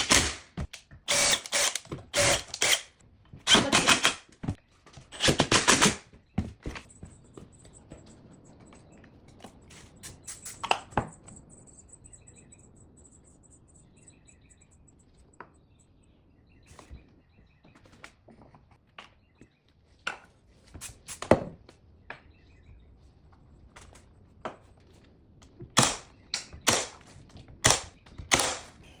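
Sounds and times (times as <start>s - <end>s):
faint high chirps: 6.9s - 17.5s.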